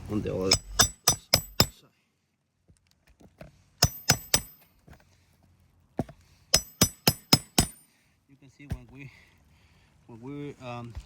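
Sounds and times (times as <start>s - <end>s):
hammer striking nail: 0.5s - 1.8s, 3.8s - 4.6s, 6.0s - 7.9s.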